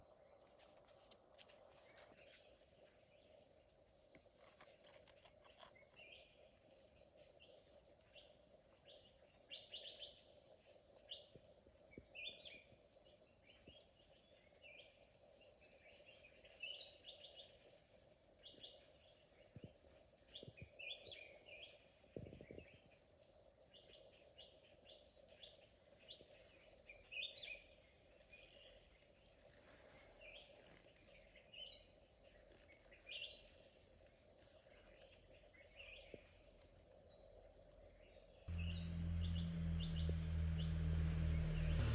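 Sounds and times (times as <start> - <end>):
low steady hum: 38.5 - 41.9.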